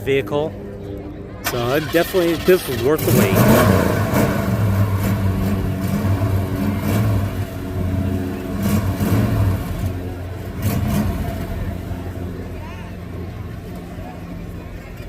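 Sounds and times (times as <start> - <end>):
car engine idling: 1.4 - 15.0.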